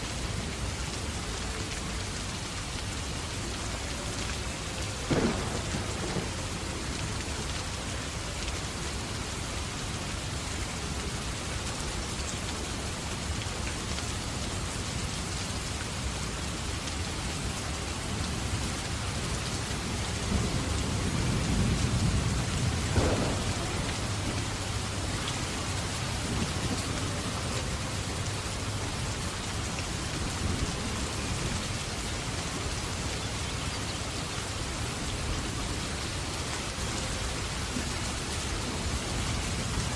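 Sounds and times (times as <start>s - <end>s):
heavy rain hissing: 0.0s - 39.9s
thunder rumble: 5.1s - 7.0s, 20.2s - 27.5s.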